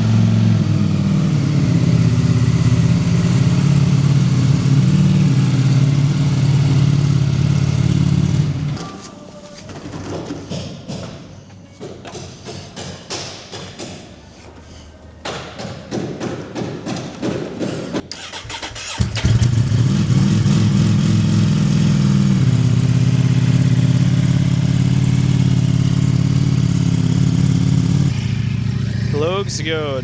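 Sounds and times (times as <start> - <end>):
motorcycle engine starting and idling: 0.0 - 9.1, 18.0 - 30.0.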